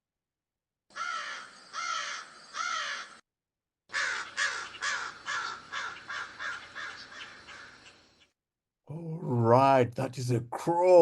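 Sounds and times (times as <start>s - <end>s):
crow cawing: 0.9s - 3.2s, 3.9s - 8.1s.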